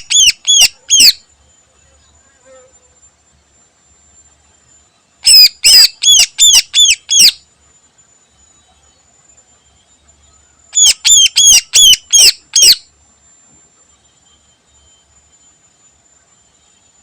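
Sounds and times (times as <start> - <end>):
bird whistling sharp notes: 5.2 - 7.4, 10.8 - 12.8.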